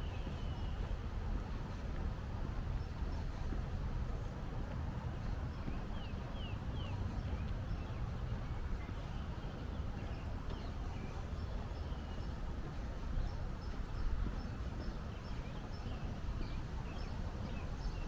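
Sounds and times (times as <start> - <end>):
low outdoor rumble: 0.0 - 18.0
small bird chirping: 5.2 - 8.1.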